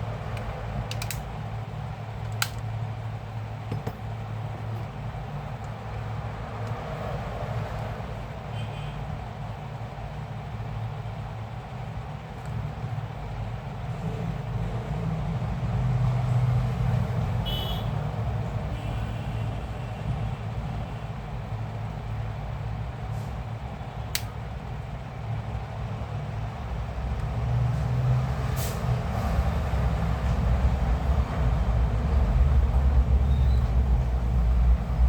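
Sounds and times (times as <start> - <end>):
sharp click: 24.1 - 24.3.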